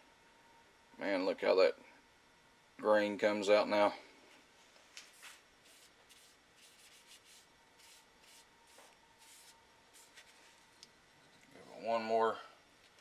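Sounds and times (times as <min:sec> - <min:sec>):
paper towel rubbing wood: 0:05.2 - 0:10.5.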